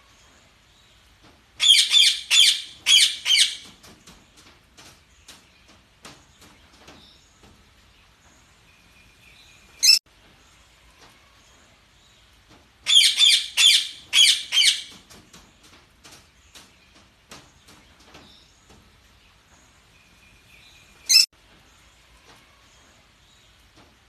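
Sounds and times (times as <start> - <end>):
parakeets chirping: 1.6 - 3.6, 9.8 - 10.0, 12.9 - 14.9, 21.1 - 21.3.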